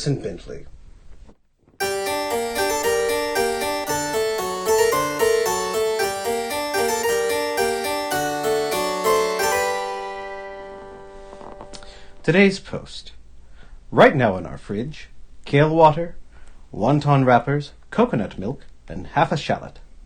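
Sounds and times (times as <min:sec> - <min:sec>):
harpsichord music: 0:01.8 - 0:12.3.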